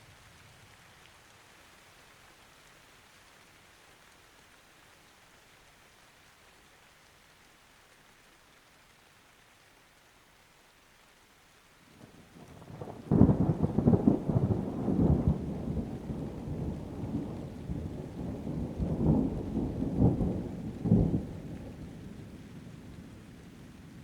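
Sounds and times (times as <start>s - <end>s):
faint rain hiss: 0.0s - 24.0s
thunder rumbling: 12.1s - 24.0s.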